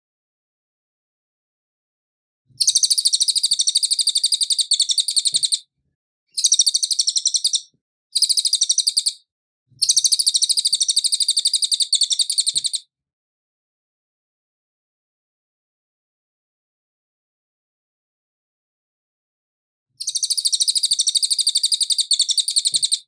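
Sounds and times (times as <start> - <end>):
songbird trilling: 2.6 - 5.6, 6.3 - 9.2, 9.8 - 12.8, 20.0 - 23.0.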